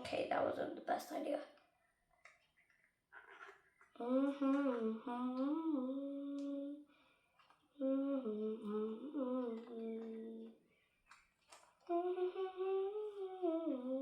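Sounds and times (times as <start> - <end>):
girl humming: 4.0 - 6.9, 7.8 - 10.6, 11.8 - 14.0.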